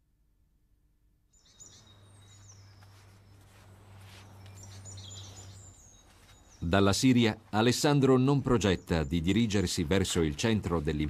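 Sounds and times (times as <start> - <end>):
high bird chirps: 1.3 - 6.8.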